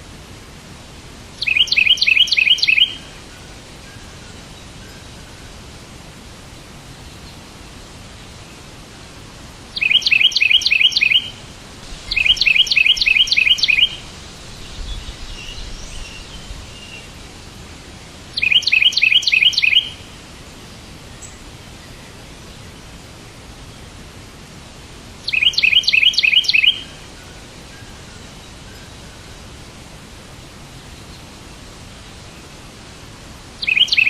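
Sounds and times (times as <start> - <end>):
steady background hiss: 0.0 - 34.0
bird chirping: 1.4 - 3.1, 9.8 - 11.4, 12.0 - 17.2, 18.4 - 20.1, 25.2 - 27.0, 33.6 - 34.0.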